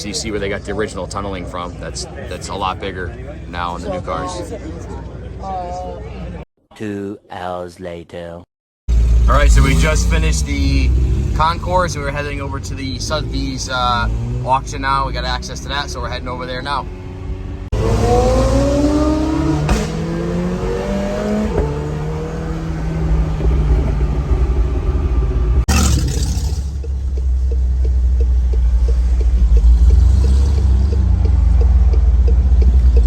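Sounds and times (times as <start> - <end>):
car engine accelerating: 8.9 - 33.0
deep loud engine rumble: 8.9 - 33.0.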